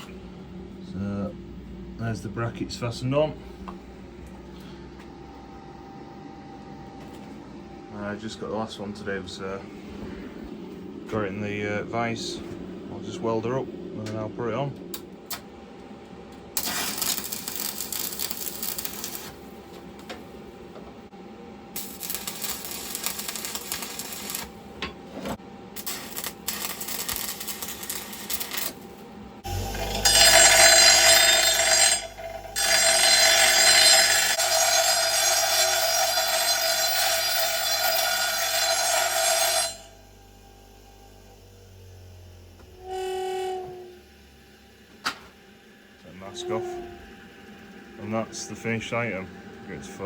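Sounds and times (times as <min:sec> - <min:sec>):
welding arc crackling and buzzing: 0:16.6 - 0:20.2, 0:21.7 - 0:24.8, 0:25.7 - 0:40.1.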